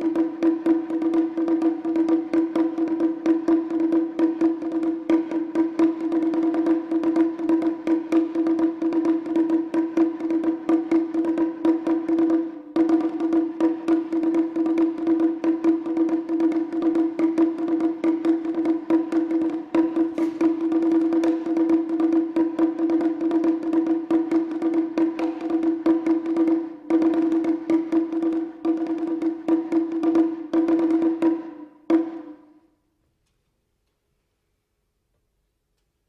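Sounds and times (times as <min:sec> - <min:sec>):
taiko drums playing fast: 0:00.0 - 0:32.4.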